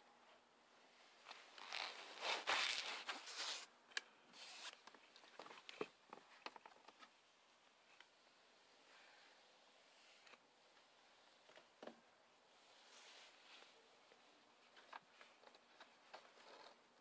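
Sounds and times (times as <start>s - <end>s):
plastic parts scraping and rustling: 1.2s - 3.7s, 4.3s - 7.2s, 14.6s - 17.0s.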